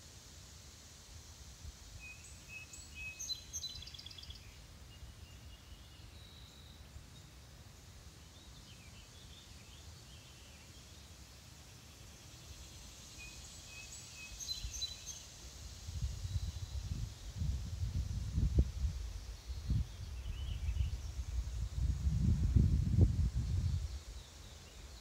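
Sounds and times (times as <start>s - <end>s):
high hiss: 0.0s - 25.0s.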